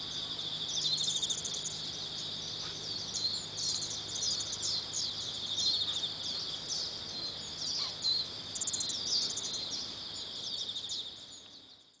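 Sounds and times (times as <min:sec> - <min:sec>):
insects chorus pulsing: 0:00.0 - 0:12.0.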